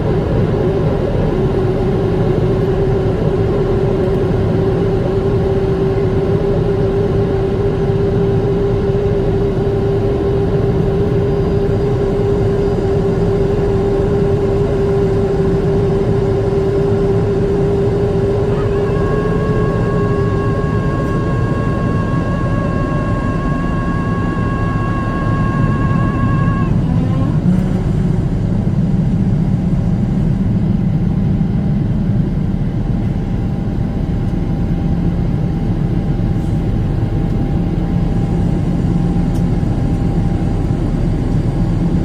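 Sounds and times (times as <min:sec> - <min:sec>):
jet engines roaring in cabin: 0:00.0 - 0:42.0.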